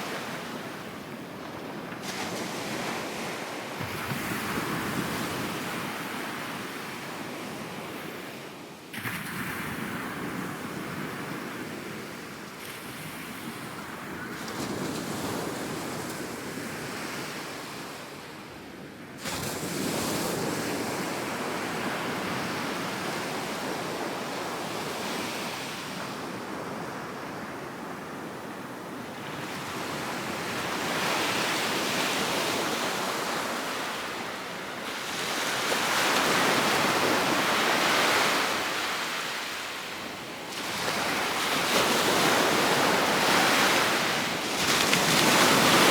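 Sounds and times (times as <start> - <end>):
ocean surf washing on beach: 19.2 - 45.9.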